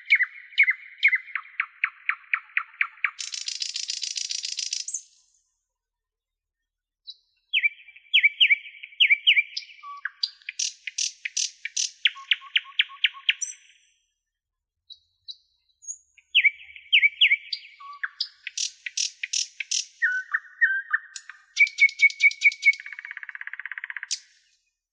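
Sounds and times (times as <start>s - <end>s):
songbird singing: 0.0s - 5.3s, 7.0s - 13.8s, 14.9s - 24.7s.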